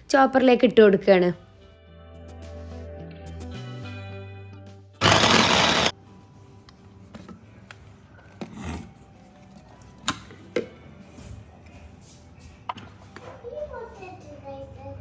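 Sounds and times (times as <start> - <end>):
food chopper running: 5.0 - 5.9.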